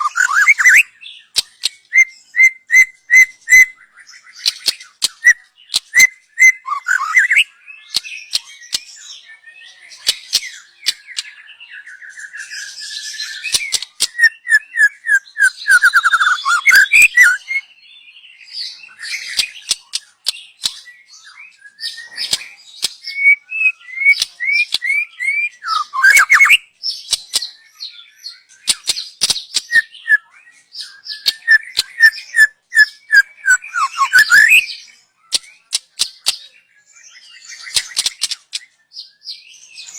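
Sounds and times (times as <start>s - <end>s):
bird singing whistled phrases: 0.0s - 39.9s
sharp ticking bird calls: 0.0s - 39.9s.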